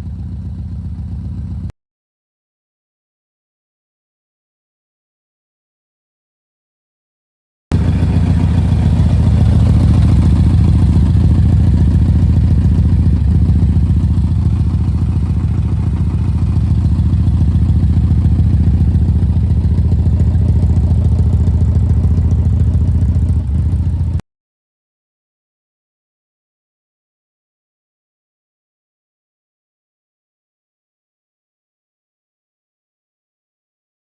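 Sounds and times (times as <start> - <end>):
motorcycle engine running: 0.0 - 1.7, 7.7 - 24.2.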